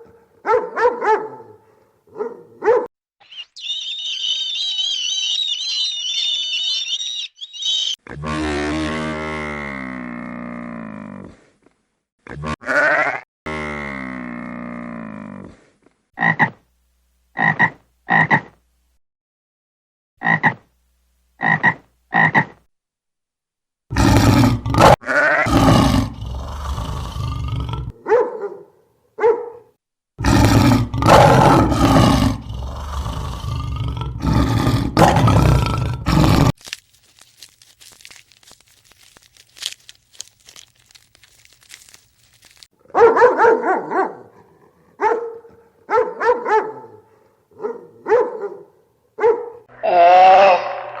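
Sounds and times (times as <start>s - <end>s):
short animal calls: 3.2s - 8.0s
long pitched animal call: 3.2s - 9.6s, 49.7s - 51.0s
rough animal calls: 3.2s - 10.8s, 30.2s - 42.7s, 49.7s - 51.0s.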